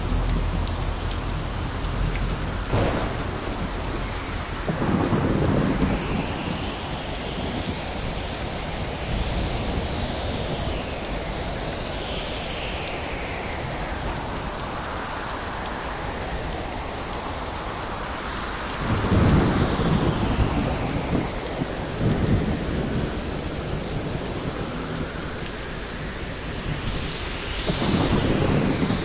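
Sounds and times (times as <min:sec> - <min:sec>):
rolling thunder: 0:00.0 - 0:29.0
steady rain falling: 0:00.0 - 0:29.0.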